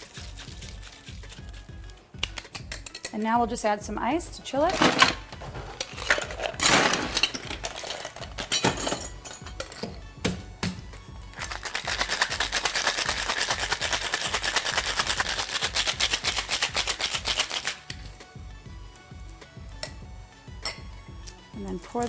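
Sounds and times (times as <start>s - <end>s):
ice rattling in cocktail shaker: 0.0s - 3.1s, 5.8s - 9.4s, 11.3s - 18.0s.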